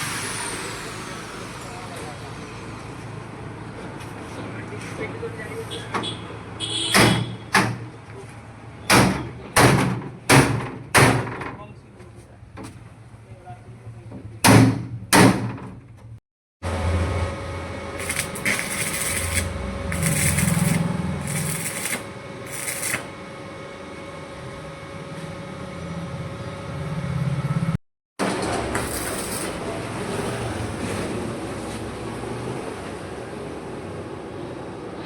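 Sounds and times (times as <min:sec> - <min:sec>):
welding machine hum: 0:16.7 - 0:23.4, 0:28.2 - 0:29.9
welding crackling hiss: 0:18.0 - 0:23.1, 0:28.8 - 0:29.7.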